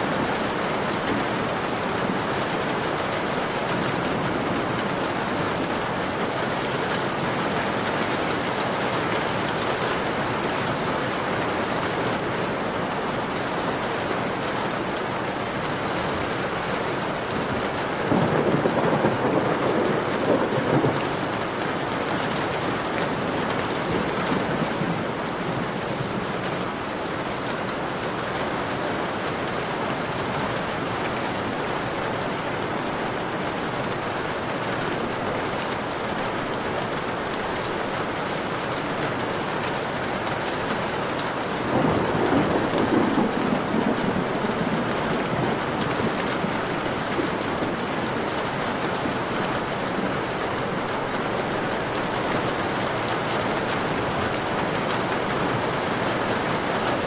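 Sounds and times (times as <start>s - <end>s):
heavy rain on a window: 0.0s - 57.0s
thunder rolling: 41.7s - 47.5s.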